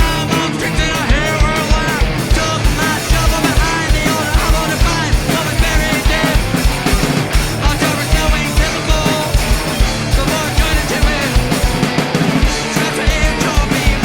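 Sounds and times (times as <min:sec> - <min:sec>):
punk rock band playing: 0:00.0 - 0:14.0.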